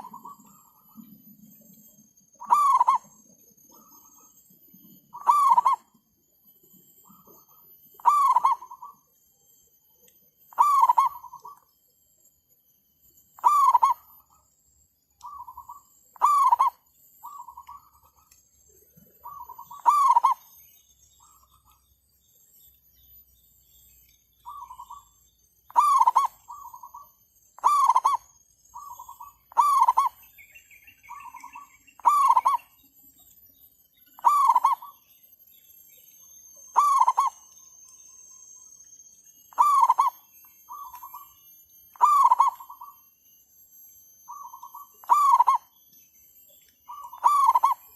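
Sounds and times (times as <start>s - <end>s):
doves cooing: 0.0s - 1.1s, 2.4s - 4.1s, 5.1s - 5.9s, 7.1s - 9.0s, 10.5s - 11.6s, 13.4s - 14.1s, 15.2s - 18.2s, 19.0s - 20.5s, 25.7s - 28.2s, 28.8s - 30.2s, 31.0s - 32.7s, 34.2s - 34.9s, 36.8s - 37.4s, 39.5s - 41.2s, 42.0s - 42.9s, 44.3s - 45.7s, 46.9s - 47.9s.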